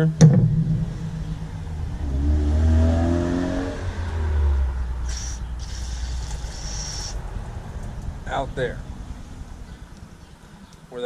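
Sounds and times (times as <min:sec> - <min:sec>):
passing vehicle engine accelerating: 0:00.5 - 0:11.0
brief hiss: 0:05.1 - 0:07.2.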